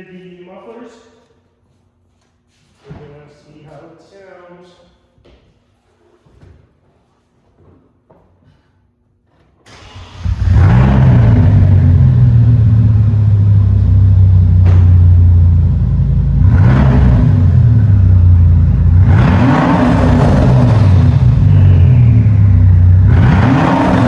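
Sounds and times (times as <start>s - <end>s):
car engine starting: 9.7s - 24.0s
engine revving: 9.8s - 24.0s.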